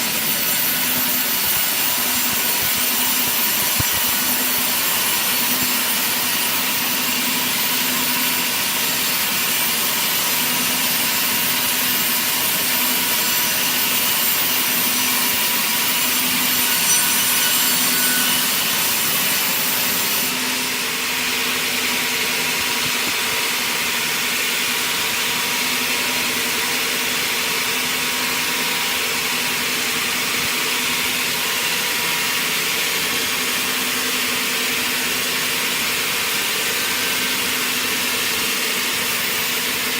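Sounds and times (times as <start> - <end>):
circular saw cutting wood: 0.0 - 24.9, 31.1 - 39.9.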